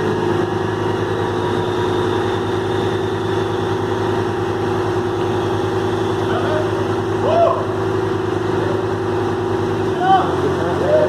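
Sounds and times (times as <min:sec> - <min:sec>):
truck diesel engine idling: 0:00.0 - 0:11.0.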